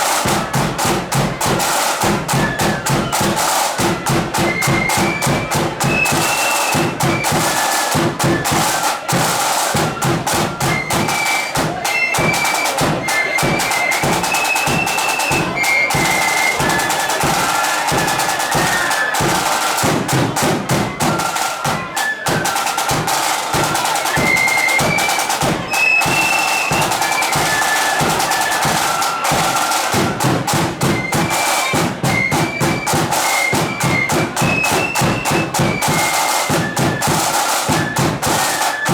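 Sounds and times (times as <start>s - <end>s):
flute melody: 0.0s - 38.9s
rapid snare drumming: 0.0s - 38.9s.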